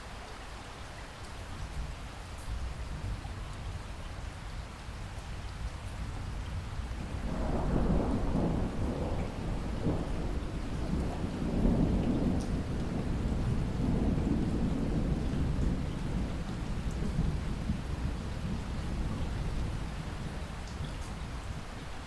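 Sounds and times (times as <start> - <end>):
steady rain falling: 0.0 - 22.0
distant thunder rumbling: 7.0 - 20.8.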